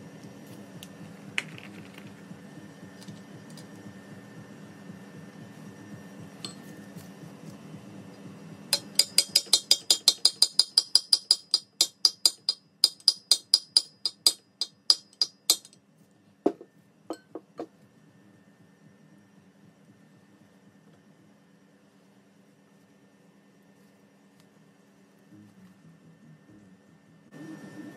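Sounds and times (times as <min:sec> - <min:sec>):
hammer tapping on metal: 0:08.7 - 0:15.8, 0:16.5 - 0:17.7.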